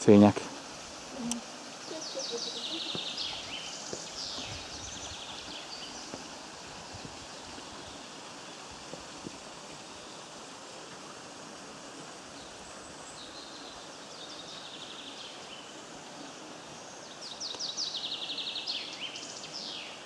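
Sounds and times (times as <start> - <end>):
songbird trilling: 1.2 - 6.1.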